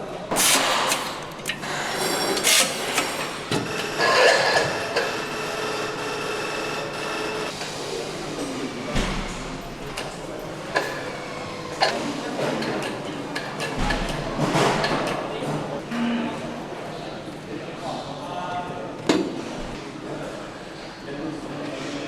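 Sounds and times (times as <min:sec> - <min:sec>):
air hissing: 0:00.3 - 0:03.5
machinery clanking and knocking: 0:00.3 - 0:15.8.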